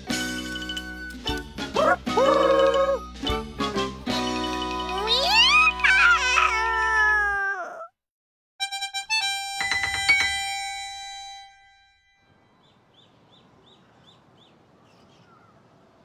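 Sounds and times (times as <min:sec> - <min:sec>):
cartoon bell chimes: 0:04.3 - 0:05.8.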